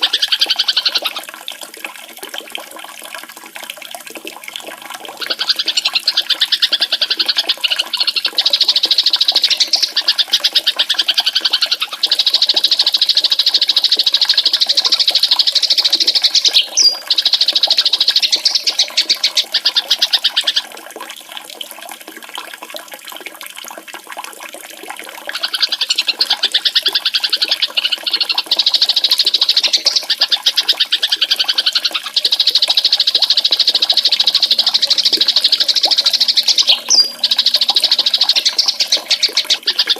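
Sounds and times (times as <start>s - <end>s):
fast high-pitched bird trill: 5.3s - 10.2s, 14.3s - 19.4s, 27.7s - 39.9s.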